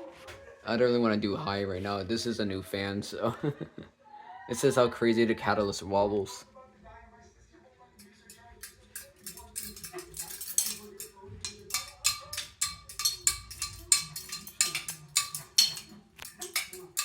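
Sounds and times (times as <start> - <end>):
fan pull chains clinking: 8.0 - 17.0.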